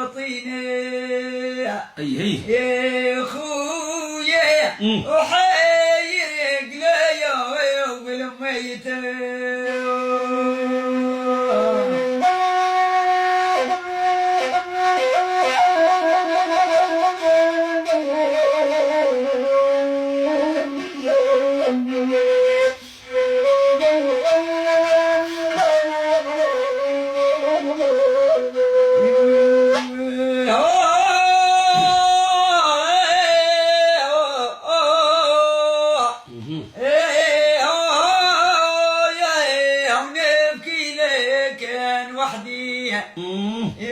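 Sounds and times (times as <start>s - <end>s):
person singing: 0.0s - 12.4s, 29.0s - 43.9s
reed flute melody with trills: 9.6s - 32.4s.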